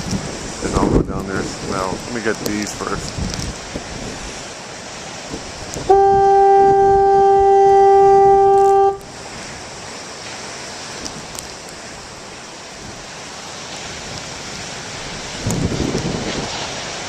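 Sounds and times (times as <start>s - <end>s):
surf: 0.0s - 17.0s
wind: 0.0s - 17.0s
foghorn blast: 5.8s - 9.1s.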